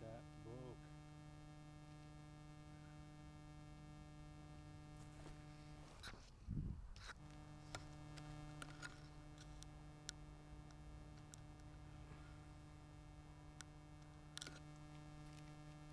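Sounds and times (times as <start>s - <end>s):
faint electrical hum: 0.0s - 15.9s
soft ticks: 7.0s - 15.9s.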